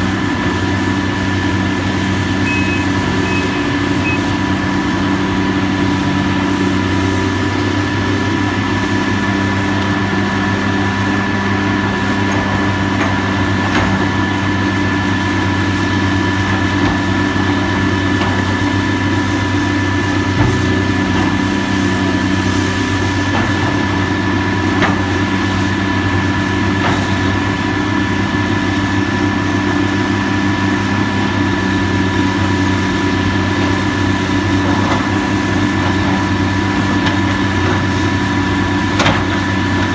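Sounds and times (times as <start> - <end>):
heavy machinery engine running: 0.0 - 39.9
thin high whine: 2.4 - 4.4.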